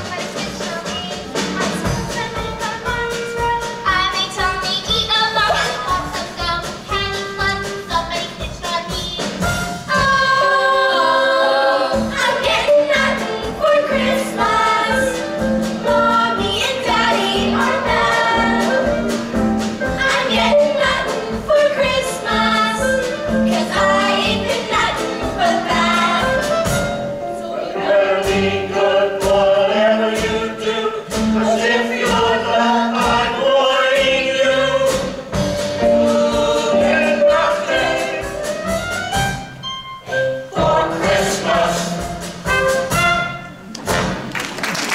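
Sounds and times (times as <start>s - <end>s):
children's choir singing: 0.0s - 38.8s, 40.4s - 42.4s
accompaniment with steady beat: 11.9s - 44.3s.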